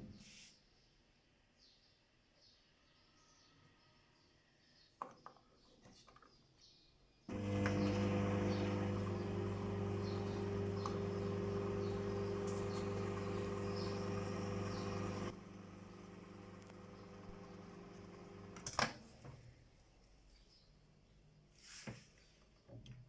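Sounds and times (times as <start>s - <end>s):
microwave oven humming: 7.3s - 18.8s.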